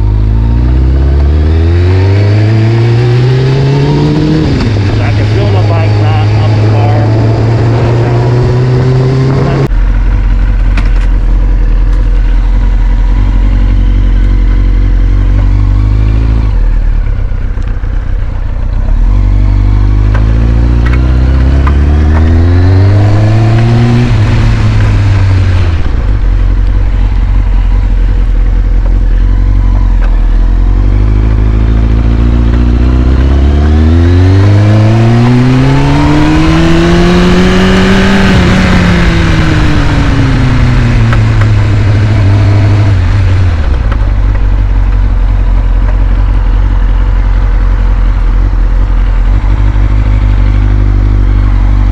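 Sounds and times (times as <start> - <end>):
motorcycle engine idling: 9.7 - 21.4, 24.2 - 33.3, 39.2 - 51.9.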